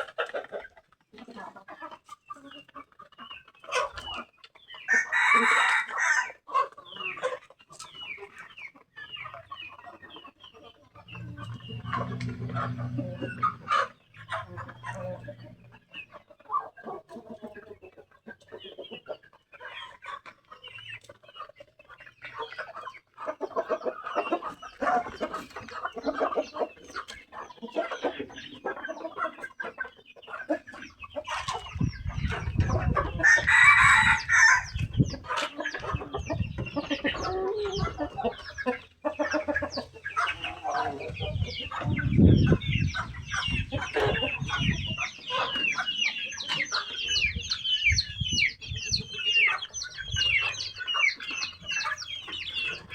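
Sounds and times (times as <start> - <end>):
chickens clucking: 0.0 - 52.9
rooster crowing: 5.0 - 6.4, 33.2 - 34.7
low thumps: 11.0 - 15.8.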